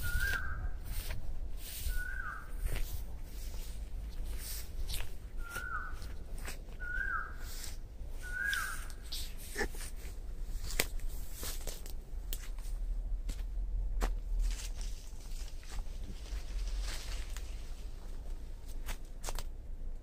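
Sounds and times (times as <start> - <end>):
bird calling: 0.0 - 1.0, 1.7 - 2.8, 5.3 - 10.0
footsteps through undergrowth: 0.0 - 19.6.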